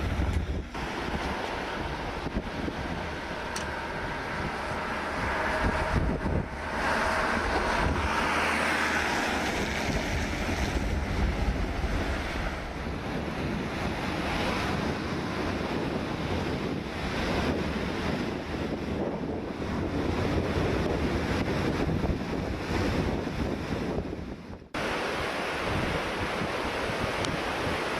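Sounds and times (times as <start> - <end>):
floodwater rushing: 0.0 - 18.8, 24.8 - 27.9
wind buffeting microphone: 0.0 - 27.9.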